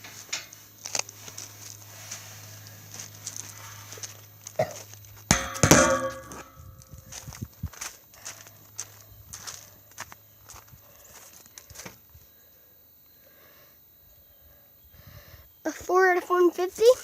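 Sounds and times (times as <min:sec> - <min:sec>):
footsteps: 0:02.9 - 0:12.0
loud metal clank: 0:05.3 - 0:07.0.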